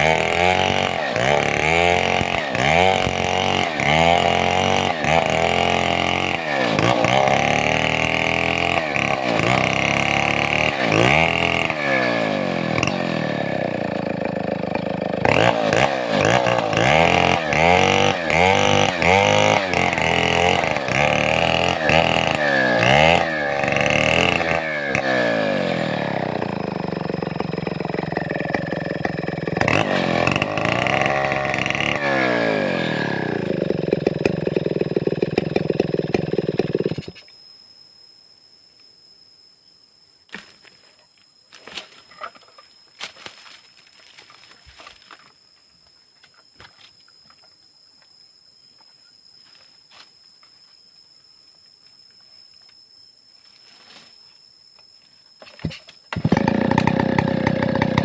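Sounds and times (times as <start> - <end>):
chainsaw revving: 0.0 - 37.2, 56.1 - 58.0.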